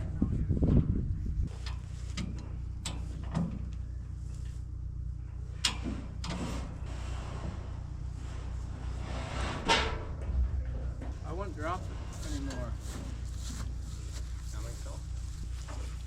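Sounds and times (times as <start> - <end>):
steady low hum: 0.0 - 16.0
scraping sound: 6.3 - 14.2.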